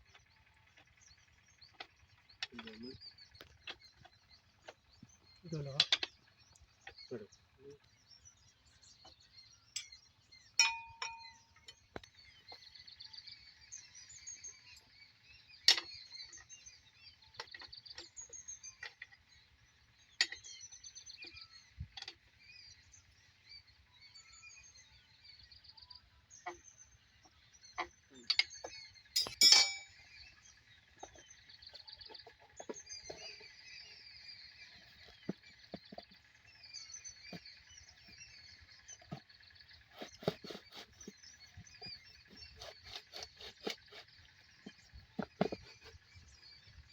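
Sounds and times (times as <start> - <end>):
birds chirping: 0.0 - 46.9
sharp clinks and knocks: 10.6 - 11.8, 28.3 - 30.0.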